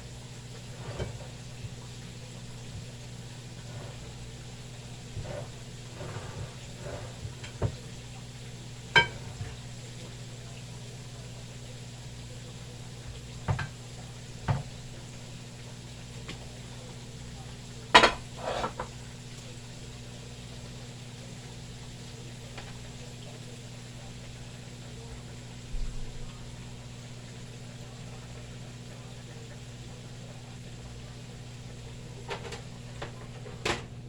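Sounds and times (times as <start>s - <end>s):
chicken sizzling in oil: 0.0s - 34.0s
utensils knocking against a pan: 5.2s - 7.9s, 8.9s - 9.6s, 13.5s - 13.8s, 18.0s - 18.9s.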